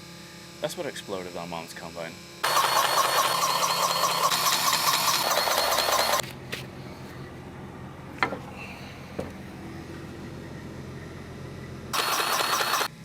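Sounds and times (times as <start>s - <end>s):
pulsing whirring machine: 2.4s - 6.2s, 9.5s - 13.0s
sharp clicks: 2.4s - 6.2s, 12.0s - 12.9s
low steady hum: 6.2s - 12.0s.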